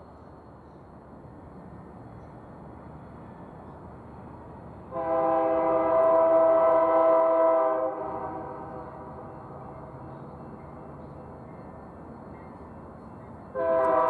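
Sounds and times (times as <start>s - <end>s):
locomotive air horn blast: 4.9s - 8.7s, 13.6s - 14.0s.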